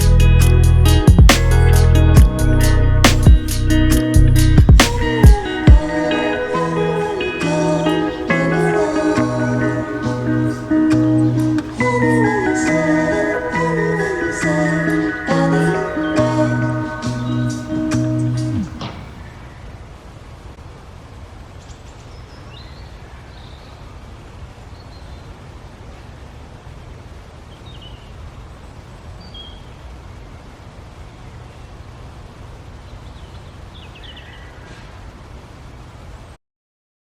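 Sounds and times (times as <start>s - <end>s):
low rumble and hiss: 0.0s - 36.4s
bird chirps: 10.5s - 19.6s.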